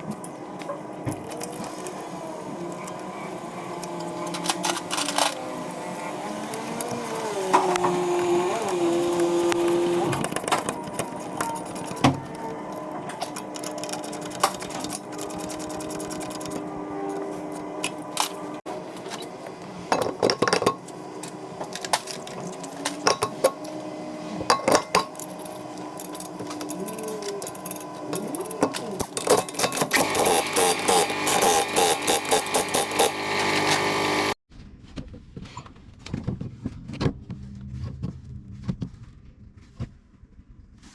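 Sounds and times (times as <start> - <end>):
metal tools clinking: 2.6 - 19.2, 24.5 - 33.8.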